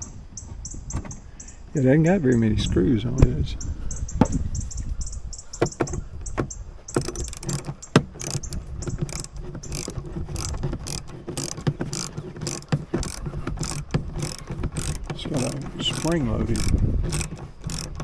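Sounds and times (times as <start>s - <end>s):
ratchet wrench clicking: 6.9s - 18.0s.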